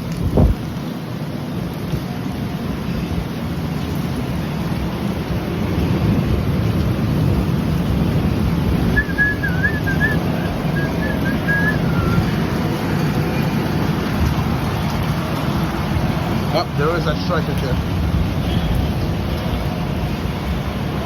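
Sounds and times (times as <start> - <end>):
rain: 0.0 - 21.0
wind: 0.0 - 21.0
wavering whistle-like tone: 8.9 - 12.3.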